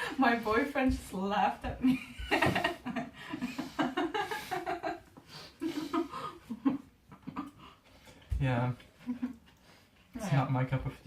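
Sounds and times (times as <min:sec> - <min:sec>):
people chuckling: 0:01.8 - 0:07.8.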